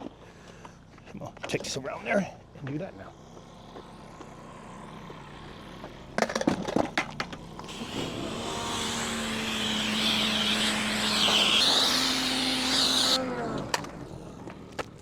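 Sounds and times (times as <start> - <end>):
pressure washer motor hum: 3.3 - 14.6
pressure washer spraying water: 7.7 - 13.2.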